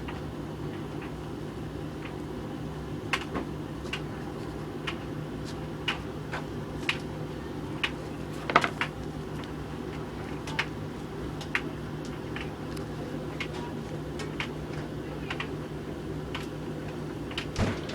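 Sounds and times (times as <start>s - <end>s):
tumble dryer humming and rumbling: 0.0s - 17.9s
load knocking against drum: 17.6s - 17.9s.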